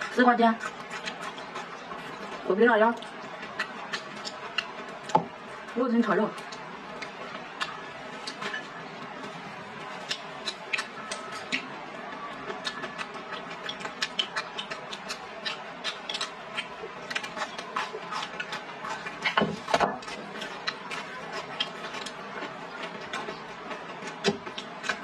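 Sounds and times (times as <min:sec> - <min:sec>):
chewing and crunching: 0:00.0 - 0:25.0.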